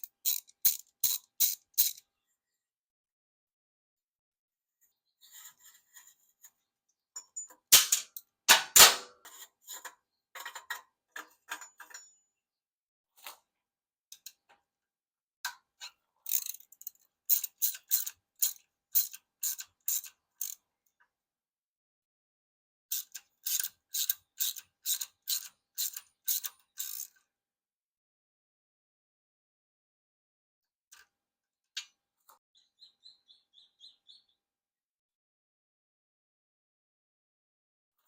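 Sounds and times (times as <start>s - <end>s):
socket ratchet clicking: 0.0s - 2.0s.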